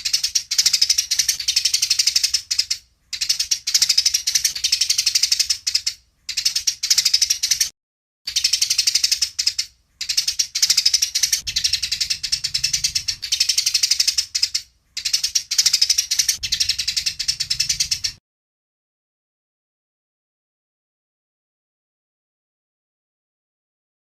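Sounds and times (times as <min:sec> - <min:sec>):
sparrows chirping: 0:00.0 - 0:07.7, 0:08.3 - 0:18.2.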